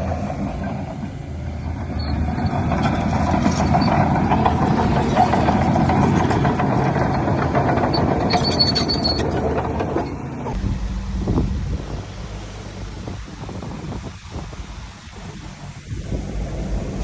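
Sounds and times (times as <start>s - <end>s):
rattling and clanking: 0.0s - 11.6s
heavy diesel machinery engine: 0.0s - 17.0s
high squeal: 2.0s - 5.9s, 8.0s - 9.4s.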